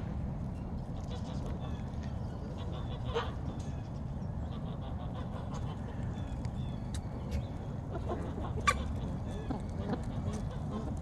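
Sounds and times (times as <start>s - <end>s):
steady low rumble: 0.0s - 11.0s
chickens clucking: 4.5s - 11.0s.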